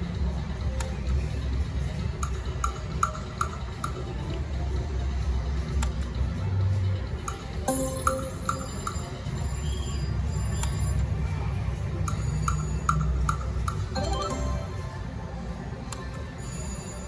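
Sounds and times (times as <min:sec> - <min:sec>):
electronic game music: 0:07.7 - 0:09.1, 0:13.9 - 0:15.4
short chime tones: 0:14.0 - 0:15.0.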